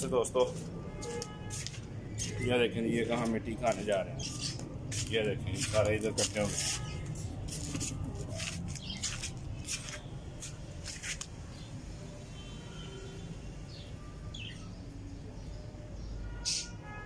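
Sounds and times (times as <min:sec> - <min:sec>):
faint bird chirps: 0:12.4 - 0:17.0.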